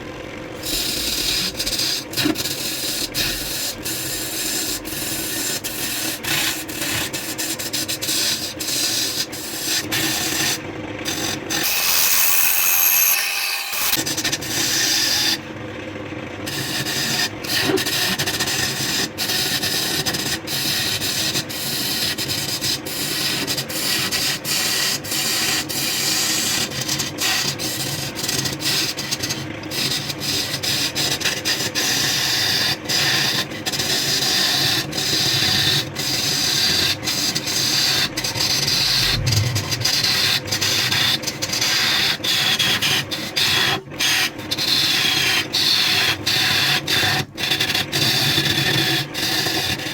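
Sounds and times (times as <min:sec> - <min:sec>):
wood lathe tool scraping wood: 0:00.6 - 0:09.0.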